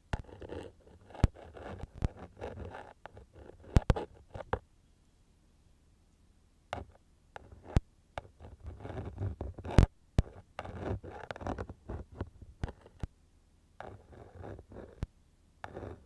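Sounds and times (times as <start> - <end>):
tool scratching in ear: 0.2 - 4.6, 6.8 - 13.1, 13.8 - 16.0.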